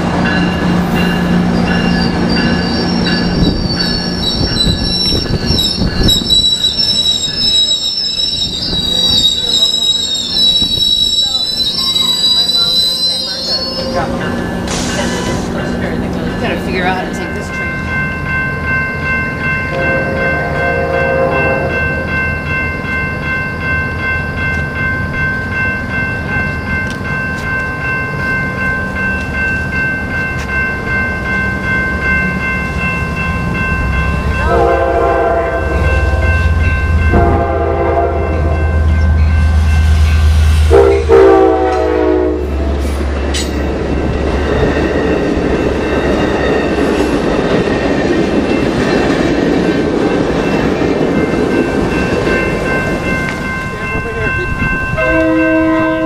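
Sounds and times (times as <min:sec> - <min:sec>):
passenger cars rolling on rails: 0:00.0 - 0:56.0
train horn blasts: 0:19.7 - 0:22.1, 0:34.4 - 0:39.6, 0:40.6 - 0:42.9, 0:55.0 - 0:56.0.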